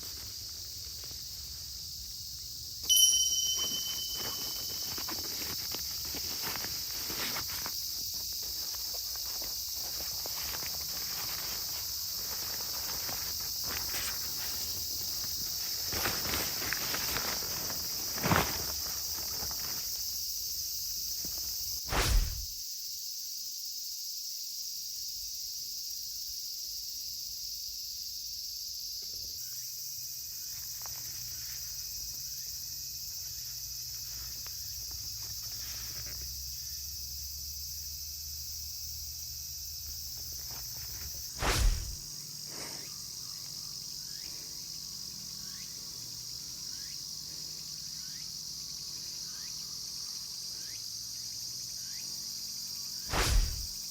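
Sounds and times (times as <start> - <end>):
insects chirping: 0.0 - 53.9
loud thumps: 21.9 - 22.6, 41.4 - 42.1, 53.1 - 53.8.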